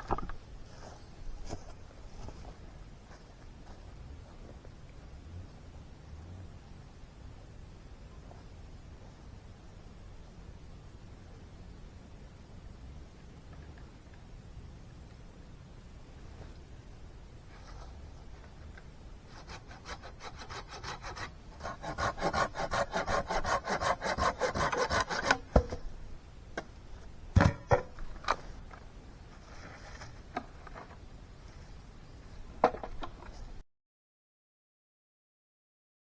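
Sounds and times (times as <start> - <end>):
hand saw cutting wood: 19.3 - 25.8.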